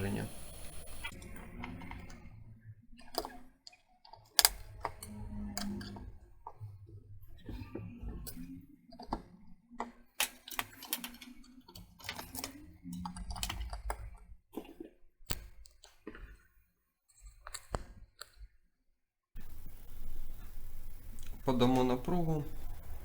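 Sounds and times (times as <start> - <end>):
computer parts clicking into place: 4.1 - 6.1, 10.2 - 14.1.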